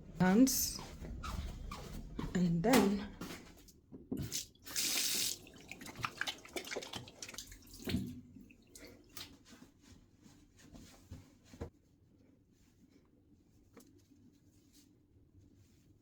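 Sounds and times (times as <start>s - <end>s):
tap water hissing: 4.2s - 8.2s.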